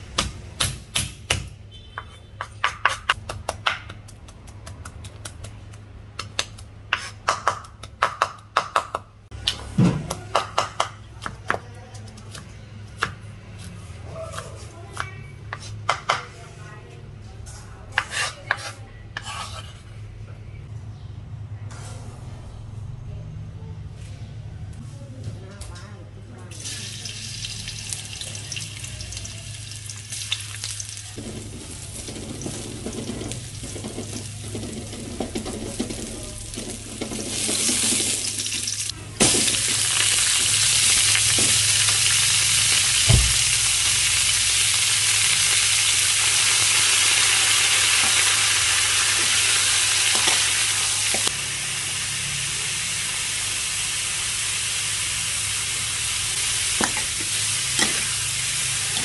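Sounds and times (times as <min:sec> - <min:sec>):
metal spatula stirring: 0:18.0 - 0:19.9, 0:31.2 - 0:38.2
ginger sizzling in hot oil: 0:26.5 - 0:59.0
dense loud sizzle of meat: 0:27.0 - 0:59.0.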